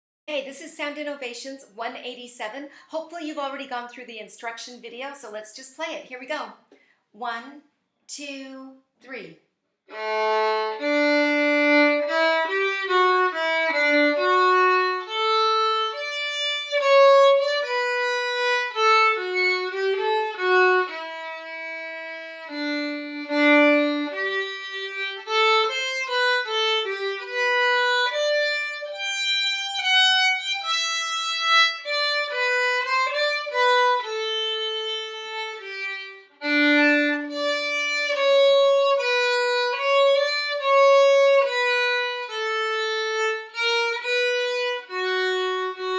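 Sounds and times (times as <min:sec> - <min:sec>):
violin playing bowed notes: 0:09.9 - 0:45.9.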